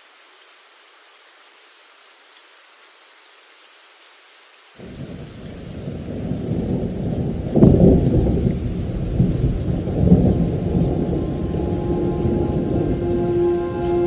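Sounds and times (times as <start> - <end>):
heavy rain: 0.0 - 14.0
loud thunder clap: 4.8 - 14.0
thunder rumbling: 4.8 - 14.0.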